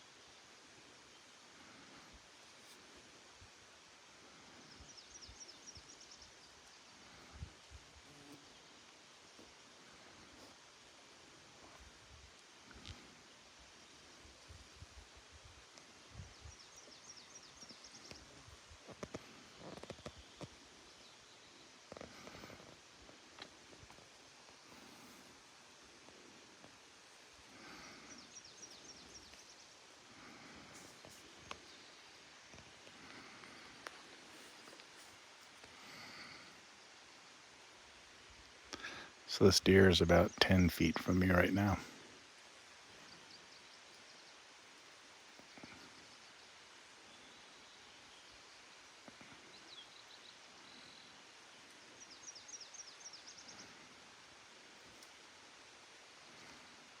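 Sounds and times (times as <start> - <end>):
steady low hiss: 0.0 - 57.0
faint songbird calls: 4.1 - 10.6, 15.7 - 22.9, 27.4 - 38.1, 38.7 - 42.0, 42.8 - 55.2
faint rustling: 17.7 - 36.6
bird chirping: 38.8 - 41.8.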